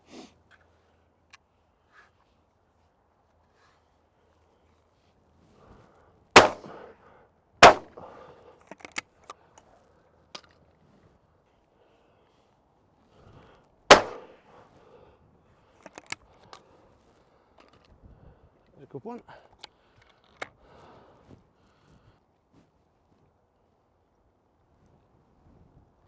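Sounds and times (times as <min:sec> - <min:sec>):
shotgun shots: 0:06.4 - 0:06.9, 0:07.6 - 0:08.1, 0:13.9 - 0:14.3
sharp clicks: 0:13.9 - 0:14.3.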